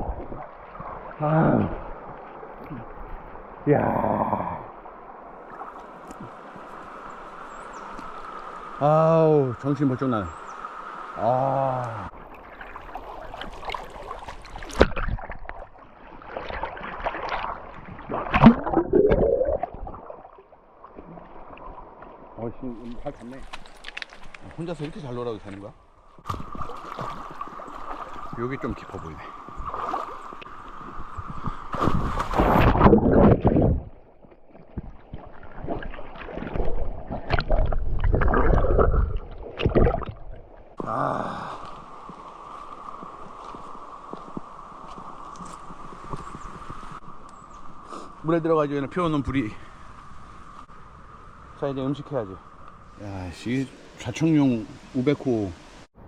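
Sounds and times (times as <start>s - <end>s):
water splashing and sloshing: 0.0s - 3.7s, 4.6s - 8.8s, 11.8s - 47.9s.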